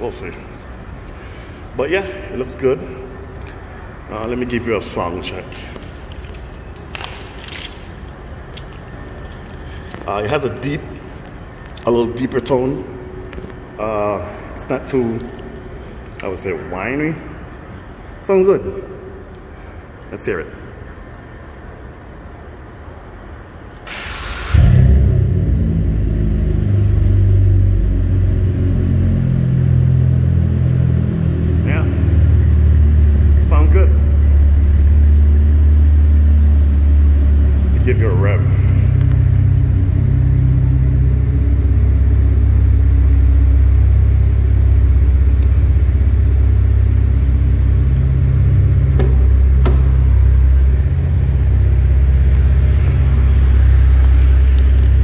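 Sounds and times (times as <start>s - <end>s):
car engine starting: 23.8s - 55.0s
deep engine idle: 23.9s - 55.0s.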